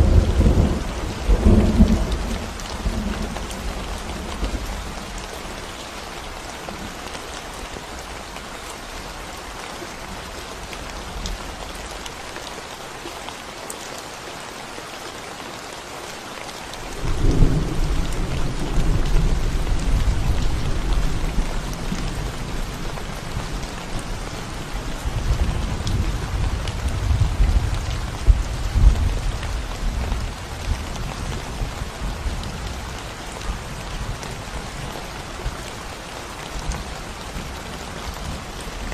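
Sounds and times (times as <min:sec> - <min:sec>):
thunder rumbling: 0:00.0 - 0:05.1, 0:17.0 - 0:31.3
rain on concrete: 0:00.0 - 0:38.9.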